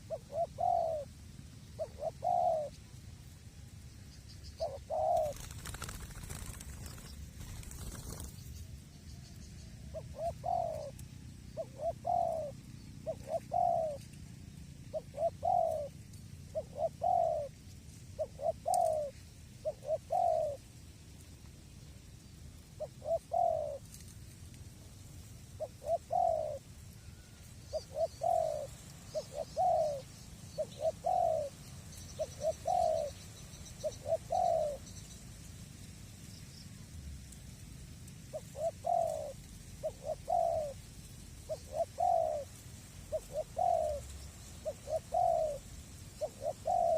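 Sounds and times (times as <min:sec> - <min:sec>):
dove cooing: 0:00.0 - 0:02.9, 0:04.5 - 0:08.4, 0:09.8 - 0:20.7, 0:22.7 - 0:24.1, 0:25.6 - 0:34.9, 0:38.2 - 0:46.9.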